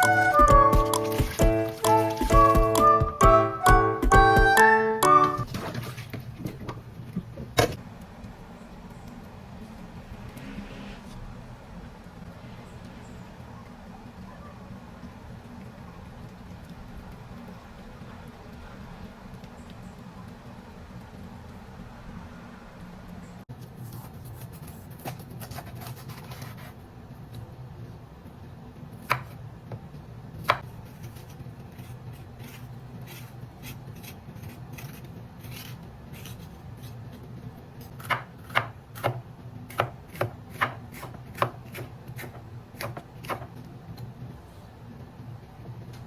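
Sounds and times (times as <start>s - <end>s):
knife chopping on cutting board: 29.1s - 29.4s, 38.0s - 43.5s.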